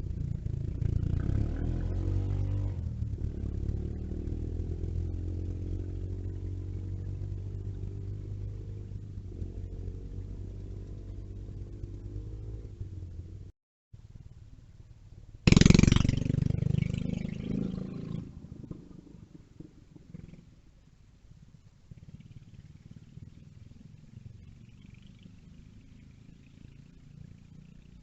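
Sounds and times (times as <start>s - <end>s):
mini bike engine puttering: 15.4s - 20.4s.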